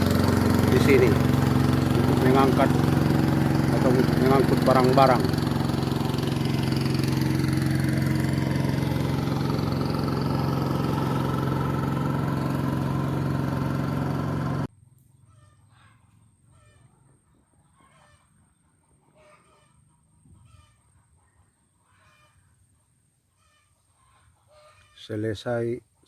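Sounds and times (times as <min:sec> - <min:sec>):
boat engine running: 0:00.0 - 0:14.7.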